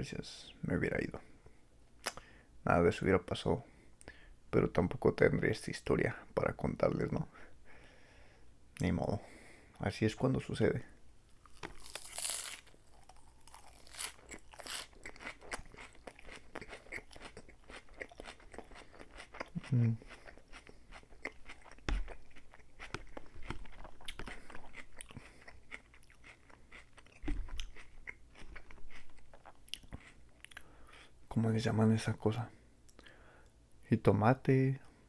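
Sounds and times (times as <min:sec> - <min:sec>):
crunching and chewing lettuce: 0:11.3 - 0:30.7.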